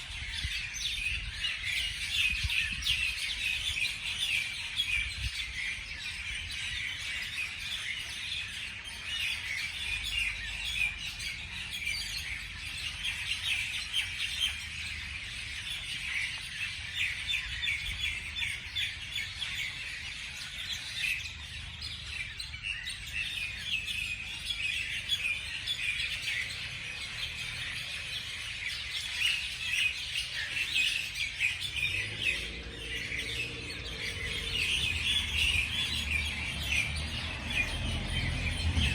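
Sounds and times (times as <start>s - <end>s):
small birds chirping: 0.0s - 38.9s
low rumble: 31.7s - 38.8s.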